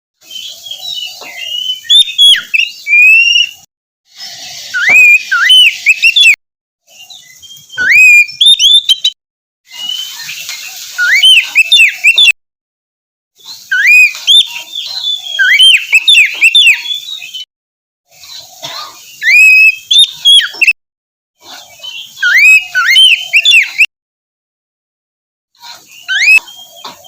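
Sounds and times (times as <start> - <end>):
bird singing whistled phrases: 0.2 - 3.7, 4.3 - 6.4, 7.0 - 12.4, 13.5 - 17.5, 19.2 - 20.8, 21.8 - 23.9, 25.8 - 26.8.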